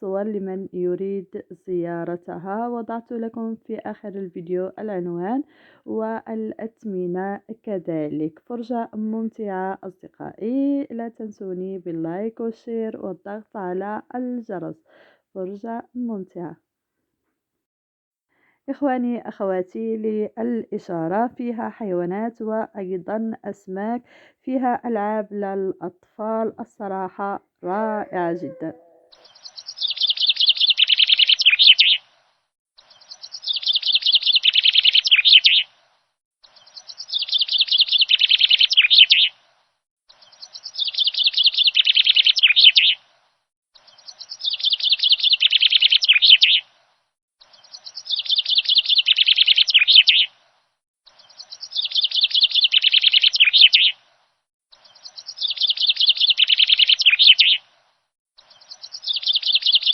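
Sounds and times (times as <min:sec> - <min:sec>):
songbird chirping: 0:00.0 - 0:14.7, 0:24.6 - 0:59.9.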